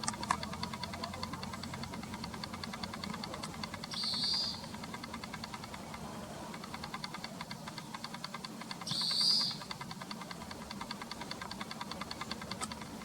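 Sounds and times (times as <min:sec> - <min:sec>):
fast high ticking: 0:00.0 - 0:13.0
buzzy bird calls: 0:03.8 - 0:04.8, 0:08.8 - 0:09.8.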